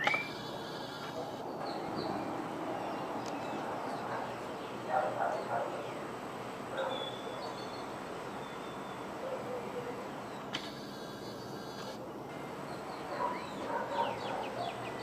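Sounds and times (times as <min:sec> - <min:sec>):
birds calling: 0:00.0 - 0:15.0
steady background noise: 0:00.0 - 0:15.0.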